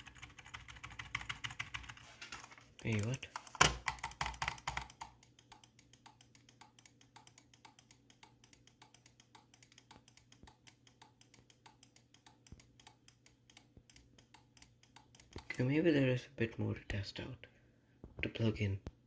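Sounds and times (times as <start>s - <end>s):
keyboard keys clicking: 0.0s - 2.0s, 2.8s - 15.6s
desktop computer hum: 0.0s - 16.1s.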